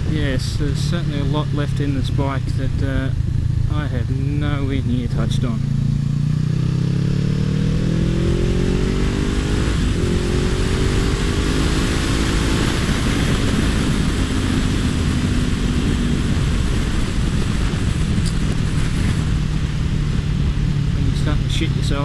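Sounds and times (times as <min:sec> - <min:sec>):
motorcycle engine revving: 0:00.0 - 0:22.0
wind rush: 0:05.5 - 0:22.0.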